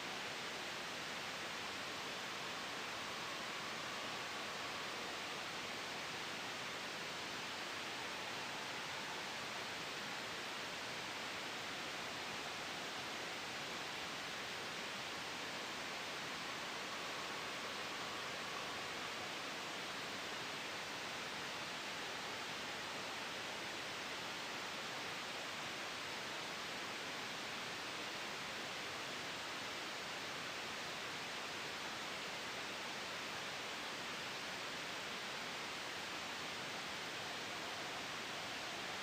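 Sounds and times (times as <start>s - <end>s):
gentle wind: 0.0s - 39.0s
white noise: 0.0s - 39.0s.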